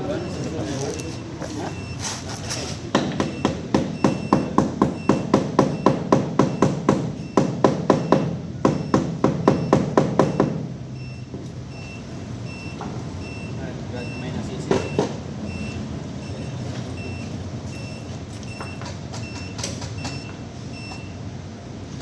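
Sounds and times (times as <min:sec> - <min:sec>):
vehicle reversing beeper: 0:00.0 - 0:22.0
hammer striking metal: 0:02.9 - 0:10.7.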